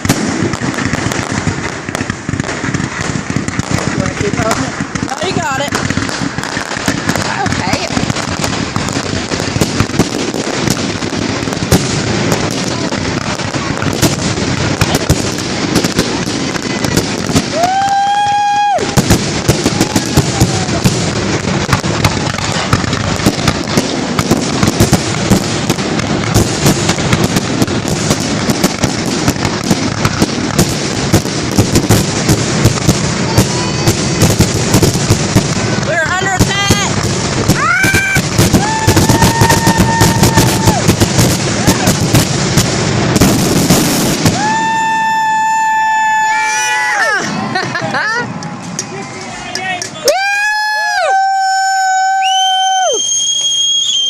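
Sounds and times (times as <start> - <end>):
fireworks cracks and pops: 0.0 - 54.0
firework high whistle: 17.4 - 20.9, 37.5 - 41.0, 43.9 - 47.6, 50.1 - 54.0
faint rising whistles: 52.2 - 54.0.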